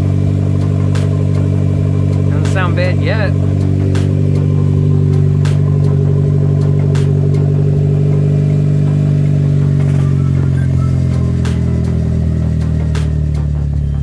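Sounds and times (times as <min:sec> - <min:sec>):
car engine idling loudly: 0:00.0 - 0:14.0
sharp clicks: 0:00.6 - 0:07.7.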